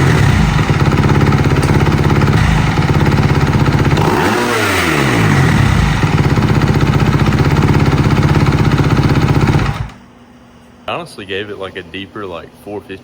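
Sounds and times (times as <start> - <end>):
dirt bike engine idling: 0.0 - 10.0.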